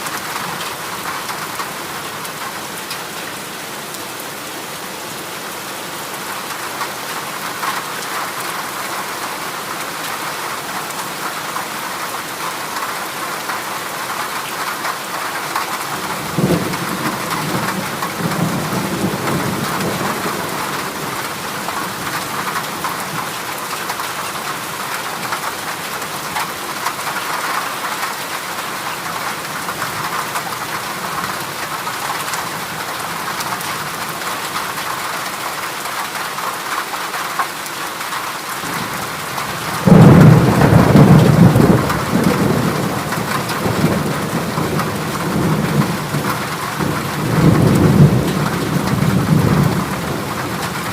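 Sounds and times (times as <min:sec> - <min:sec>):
heavy rain on a metal roof: 0:00.0 - 0:50.9
low roll of thunder: 0:38.6 - 0:50.9.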